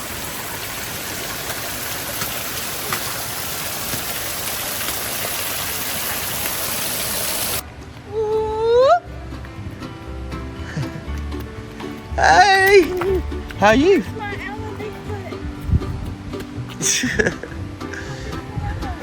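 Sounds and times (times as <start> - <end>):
waterfall roaring: 0.0 - 7.6.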